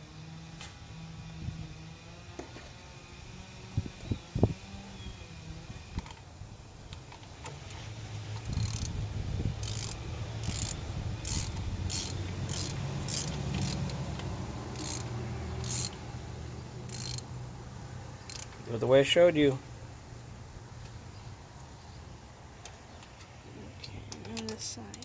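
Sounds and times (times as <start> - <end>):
ratchet wrench clicking: 7.0 - 9.0, 9.6 - 16.0, 16.8 - 17.3, 18.2 - 18.7, 24.4 - 25.0.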